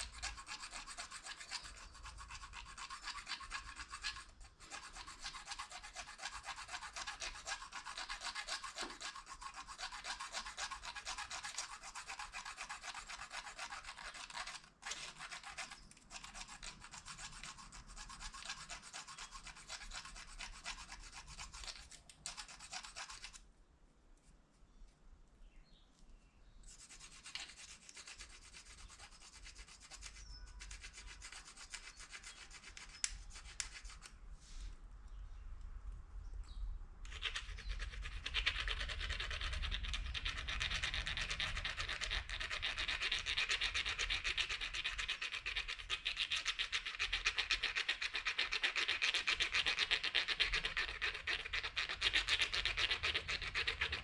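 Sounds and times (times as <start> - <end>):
plastic fork scraping spoon: 0.0 - 23.4.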